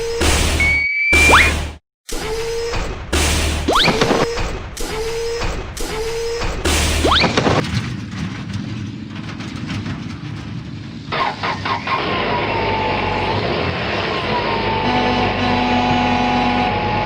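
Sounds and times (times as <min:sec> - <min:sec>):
rising cartoon whistle: 0:00.0 - 0:01.7
engine-like rumble: 0:06.7 - 0:17.0.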